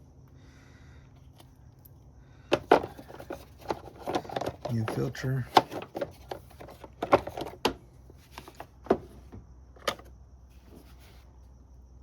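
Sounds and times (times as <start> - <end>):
faint steady hum: 0.0 - 12.0
plastic clicks and knocks: 2.5 - 9.1.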